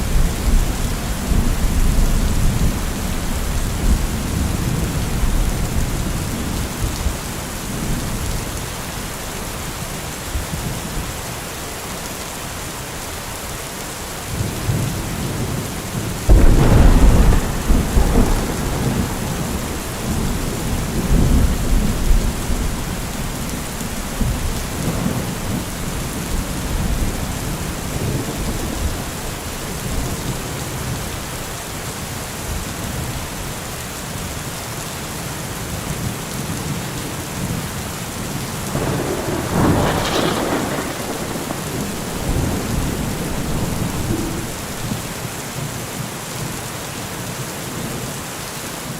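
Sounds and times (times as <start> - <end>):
steady rain: 0.0 - 48.9
thunder rumbling and clapping: 16.2 - 31.0, 38.7 - 45.2.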